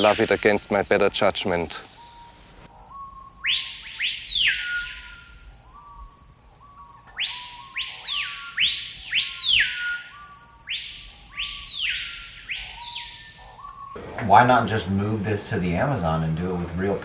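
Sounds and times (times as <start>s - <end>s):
bird whistles swooping up and down: 1.9s - 14.0s.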